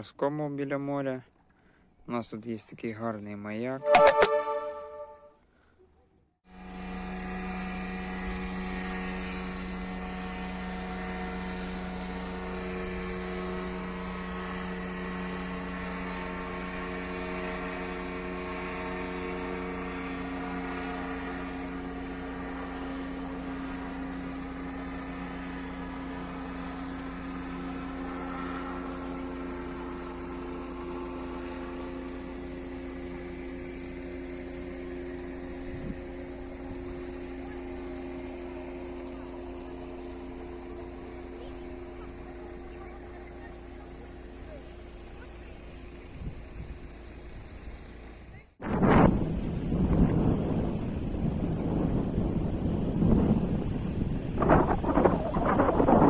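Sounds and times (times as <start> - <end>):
drone propellers droning: 48.6 - 56.0.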